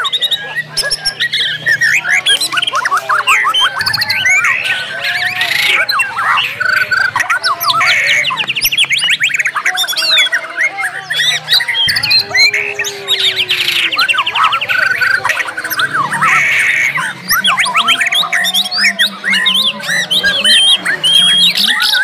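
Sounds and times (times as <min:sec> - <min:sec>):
songbirds singing densely: 0:00.0 - 0:22.0.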